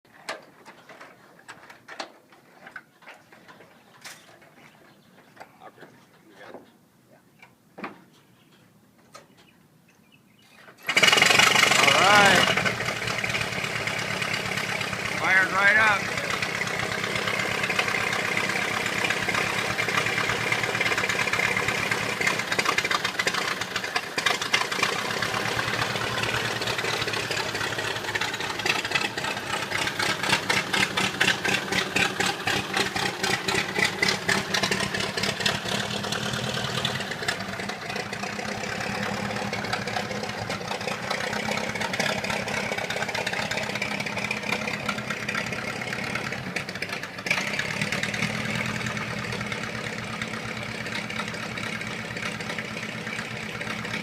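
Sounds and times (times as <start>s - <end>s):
old car engine running: 10.8s - 54.0s.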